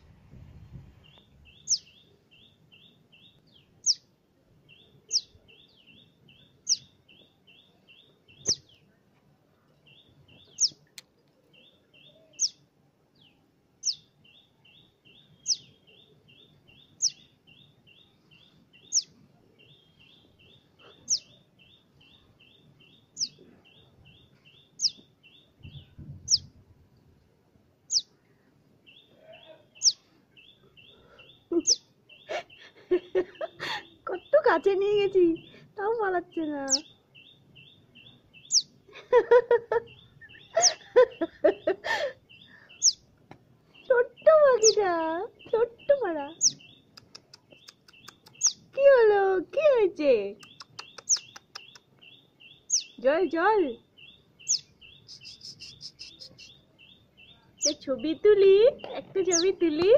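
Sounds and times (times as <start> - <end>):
fledgling bird cheeping: 1.1 - 4.0, 4.7 - 8.8, 9.9 - 10.9, 11.6 - 12.6, 13.2 - 26.5, 27.9 - 28.1, 28.9 - 35.6, 36.7 - 38.8, 39.5 - 43.0, 43.8 - 48.8, 50.4 - 53.0, 53.6 - 59.8
rapid short chirps: 55.1 - 56.5.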